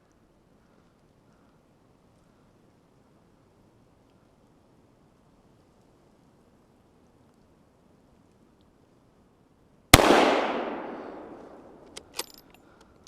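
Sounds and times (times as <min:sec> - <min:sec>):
gunshot: 0:10.0 - 0:11.8
sharp clicks: 0:10.0 - 0:13.0.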